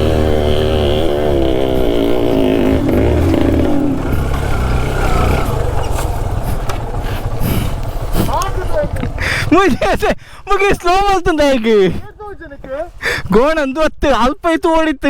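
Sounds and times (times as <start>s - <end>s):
two-stroke motorcycle engine: 0.0s - 9.9s.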